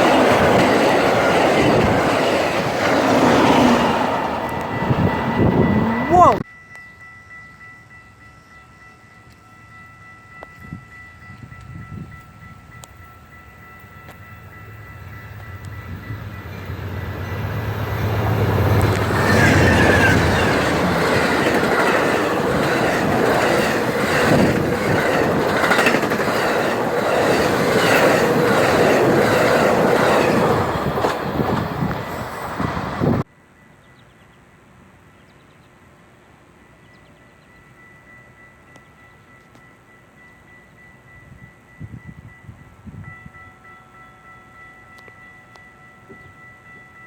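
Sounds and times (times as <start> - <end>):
train wheels clickety-clack: 0.0 - 4.8, 18.2 - 32.8
train engine hum: 0.0 - 47.0.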